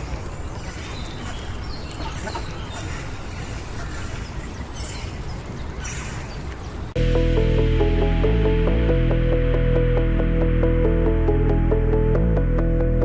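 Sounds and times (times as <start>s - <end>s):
outdoor background noise: 0.0s - 8.0s
ducks quacking: 0.6s - 6.4s
low hum: 7.0s - 13.0s
music with sustained tones: 7.0s - 13.0s.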